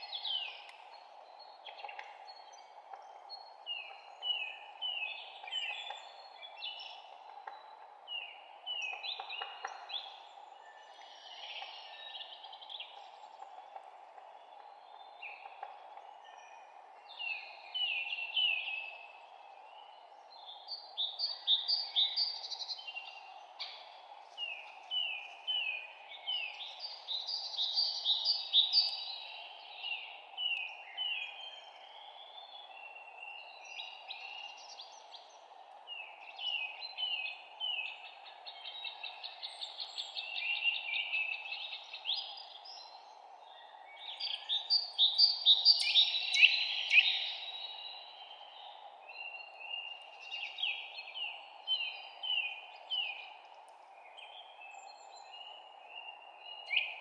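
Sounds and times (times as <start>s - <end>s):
songbirds chirping: 0.0s - 57.0s
steady low background hiss: 0.0s - 57.0s.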